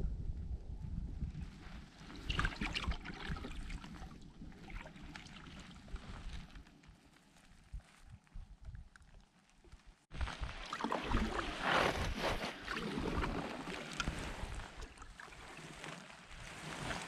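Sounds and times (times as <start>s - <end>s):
low rumble: 0.0s - 2.0s
paddle splashing in water: 1.9s - 6.6s, 10.2s - 17.0s.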